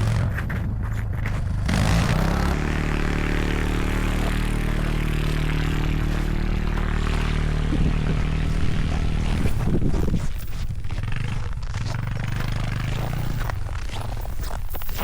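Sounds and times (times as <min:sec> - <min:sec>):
atv engine running under load: 0:00.0 - 0:15.0
scraping and clattering: 0:08.9 - 0:15.0.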